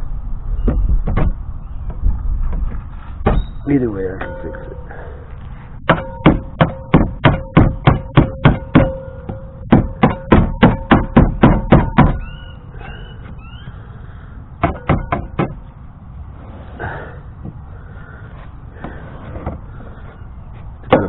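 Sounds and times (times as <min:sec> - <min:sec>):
steady hum: 0:00.0 - 0:21.0
short rising squeaks: 0:03.0 - 0:03.7, 0:12.1 - 0:14.0
rapid sharp knocks: 0:05.9 - 0:12.2, 0:14.6 - 0:15.6.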